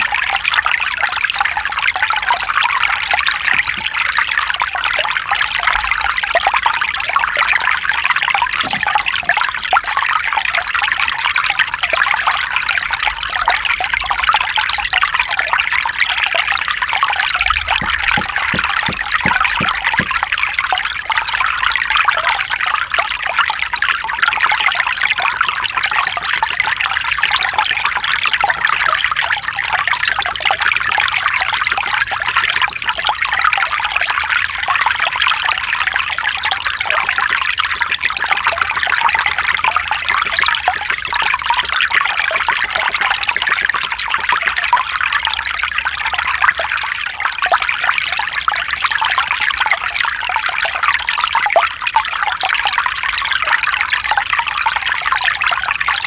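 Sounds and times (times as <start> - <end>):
stream babbling over rocks: 2.8 - 4.5, 7.9 - 10.2, 16.9 - 20.9, 36.4 - 47.0.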